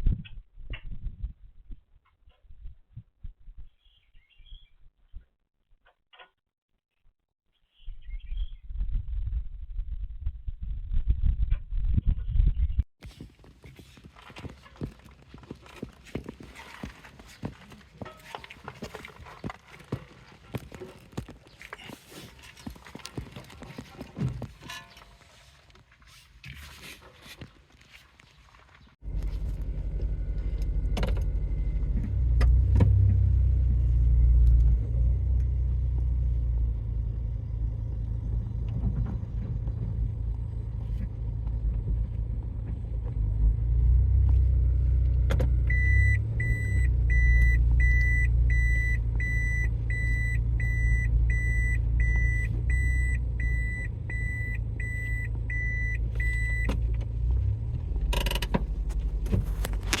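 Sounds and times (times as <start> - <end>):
car driving rumble: 28.4 - 60.0.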